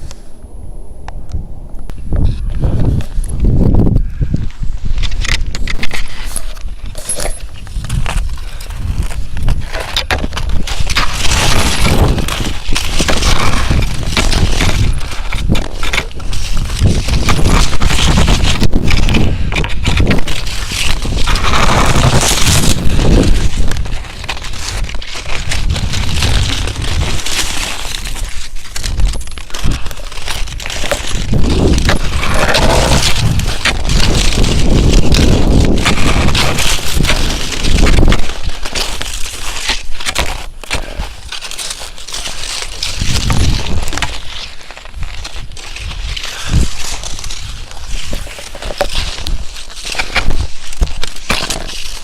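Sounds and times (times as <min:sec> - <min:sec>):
wind rumbling on microphone: 0:00.0 - 0:52.0
footsteps crunching on snow: 0:04.5 - 0:52.0.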